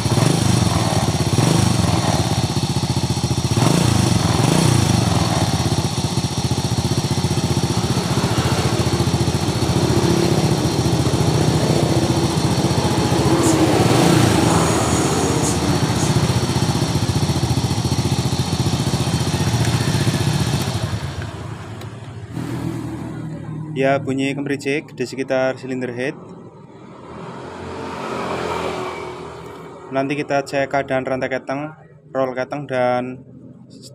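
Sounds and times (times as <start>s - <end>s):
motorcycle engine rattling: 0.0s - 23.4s.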